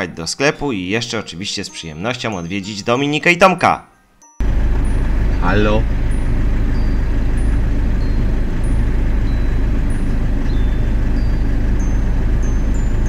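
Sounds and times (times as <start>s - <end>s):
car engine idling: 4.4s - 13.0s.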